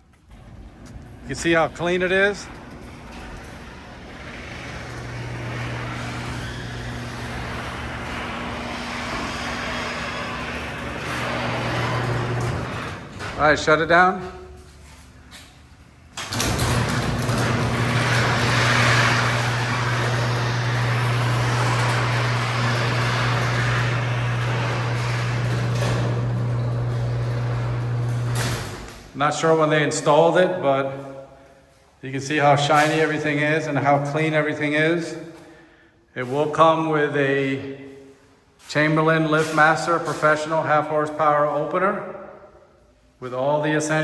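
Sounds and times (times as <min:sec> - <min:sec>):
garage door rattling in tracks: 0:00.1 - 0:14.7, 0:15.9 - 0:29.2
garage door opener motor hum: 0:00.2 - 0:14.0, 0:15.8 - 0:29.2.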